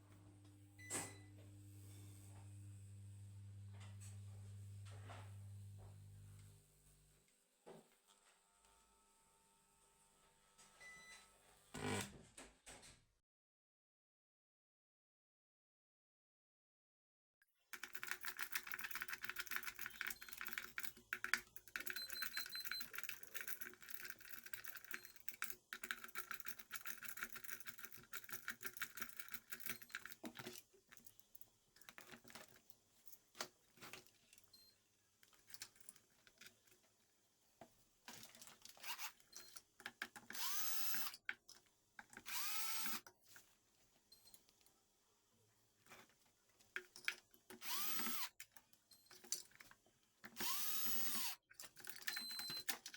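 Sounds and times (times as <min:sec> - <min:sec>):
electric motor rattling whir: 0:47.6 - 0:48.3, 0:50.4 - 0:51.4
motor clicks: 0:47.6 - 0:48.3, 0:50.3 - 0:51.4.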